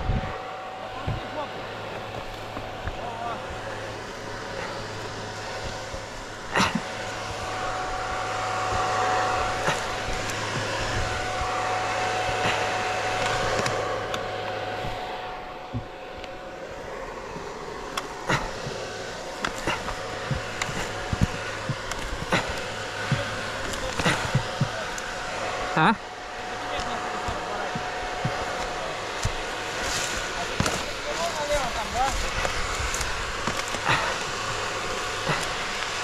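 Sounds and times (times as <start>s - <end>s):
small engine running: 0.0s - 36.0s.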